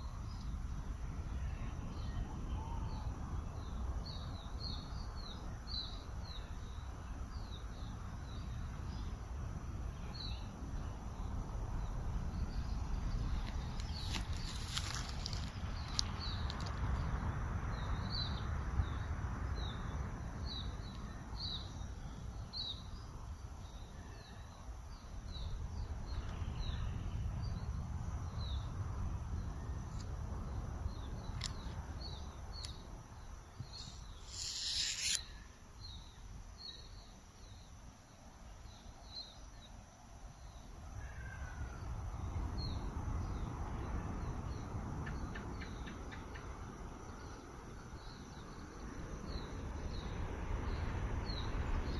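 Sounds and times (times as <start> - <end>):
loud hiss: 33.6 - 35.4.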